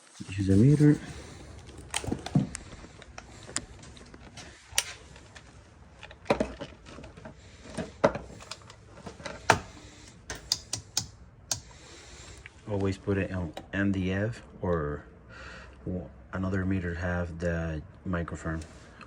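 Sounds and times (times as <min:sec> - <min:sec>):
clicks of handling a multimeter: 0:09.5 - 0:11.7.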